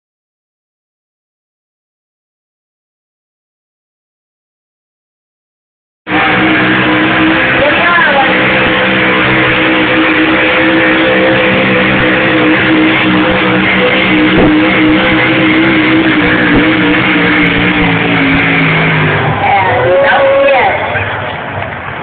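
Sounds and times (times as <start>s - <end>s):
tractor engine at high revs: 6.1s - 22.0s.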